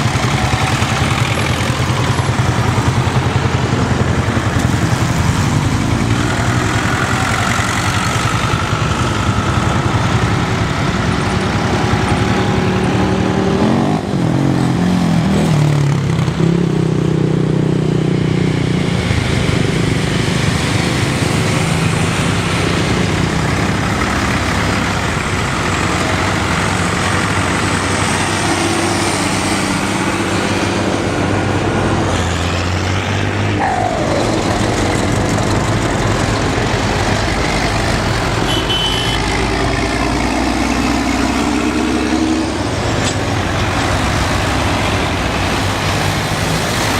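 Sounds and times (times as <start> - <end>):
tractor engines running: 0.0 - 46.9.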